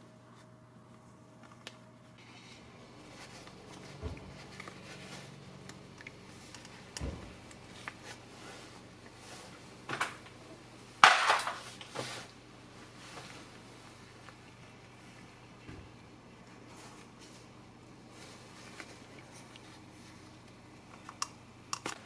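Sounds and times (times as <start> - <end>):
faint steady hum: 0.0 - 22.0
clicks and knocks of handling: 20.4 - 22.0.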